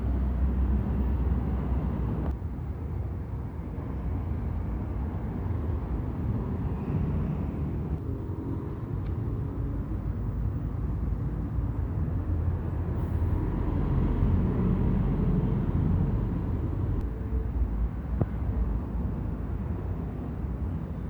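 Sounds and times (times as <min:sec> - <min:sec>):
bus engines rumbling: 0:00.0 - 0:21.0.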